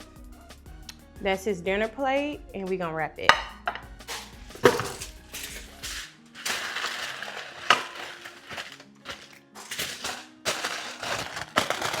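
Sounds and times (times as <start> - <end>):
kitchen wrap crinkling: 3.7 - 12.0.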